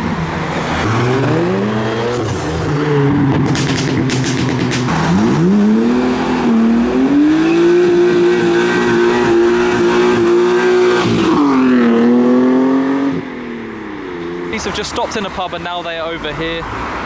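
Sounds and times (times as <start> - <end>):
car engine revving: 0.0 - 13.3.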